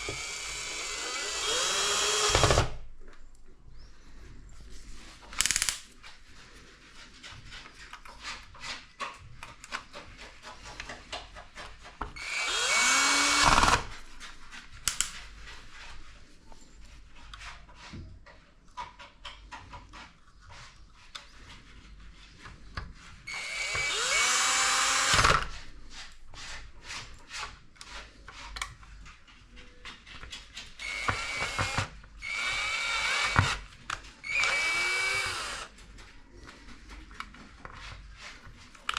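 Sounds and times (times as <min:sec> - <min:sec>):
electric screwdriver whirring: 0:00.0 - 0:02.7, 0:12.2 - 0:13.9, 0:23.3 - 0:25.5, 0:30.8 - 0:33.6, 0:34.2 - 0:35.7.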